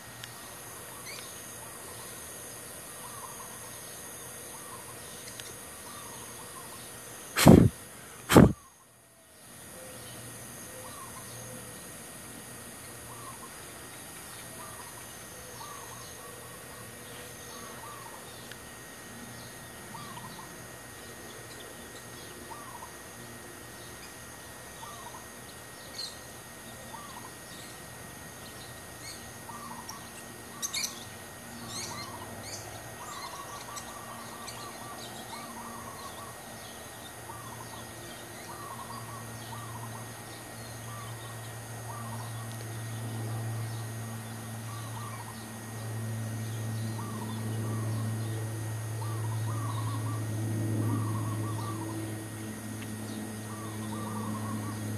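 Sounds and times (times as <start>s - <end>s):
birds calling: 0.0s - 8.8s, 9.8s - 11.6s, 12.9s - 54.9s
low hum: 38.7s - 54.9s.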